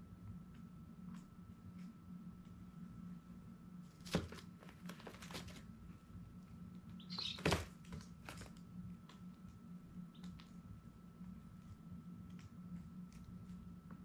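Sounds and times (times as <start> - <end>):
steady low hum: 0.0 - 14.0
chick peeping: 6.9 - 7.6.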